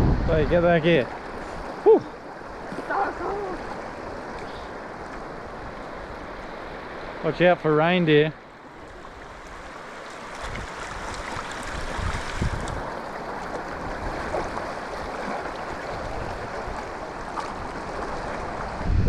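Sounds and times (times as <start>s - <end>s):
wind buffeting microphone: 0.0s - 6.5s, 10.3s - 13.0s, 13.7s - 19.0s
sea surf on shoreline: 0.0s - 19.0s
wind: 0.0s - 19.0s.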